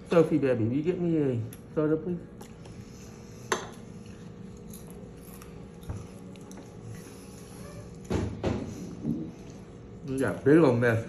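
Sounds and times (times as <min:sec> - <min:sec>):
person chewing food: 0:02.3 - 0:08.1.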